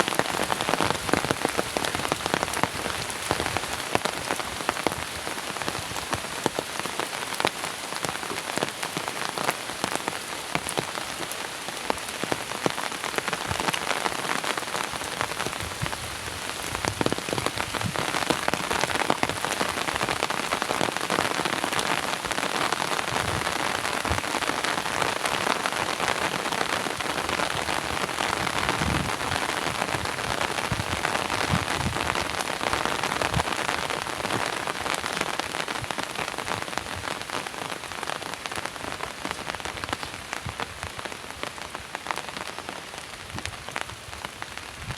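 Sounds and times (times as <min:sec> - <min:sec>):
heavy rain pouring: 0:00.0 - 0:44.9.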